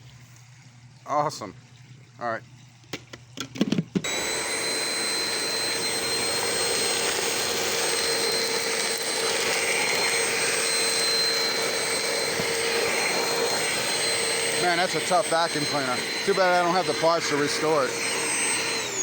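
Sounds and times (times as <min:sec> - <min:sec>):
vacuum cleaner motor whining: 0:04.0 - 0:19.0.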